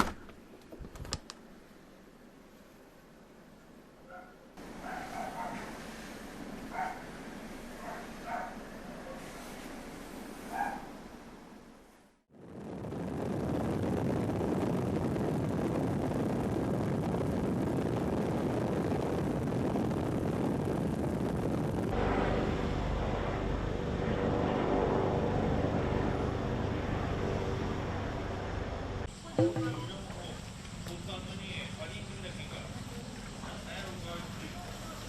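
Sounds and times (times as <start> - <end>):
helicopter engine and rotor roar: 21.9 - 29.1
steady tones: 21.9 - 30.4.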